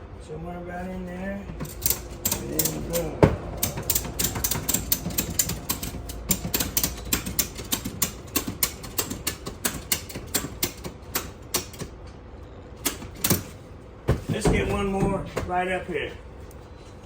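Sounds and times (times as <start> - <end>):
ratchet strap clicking: 1.6 - 11.9.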